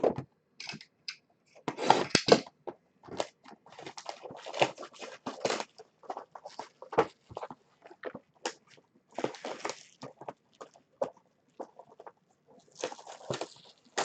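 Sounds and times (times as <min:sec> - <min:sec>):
plastic packaging crinkling: 0:03.1 - 0:14.0.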